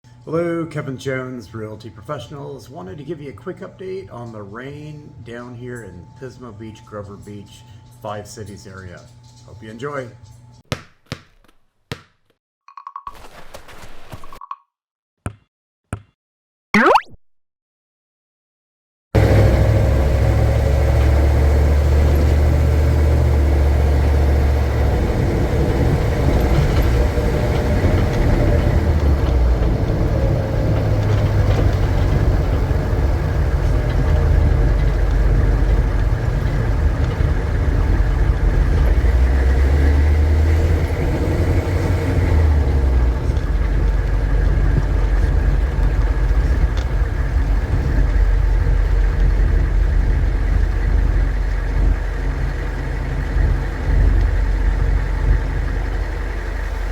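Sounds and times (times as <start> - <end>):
car engine and road rumble: 19.2 - 56.9.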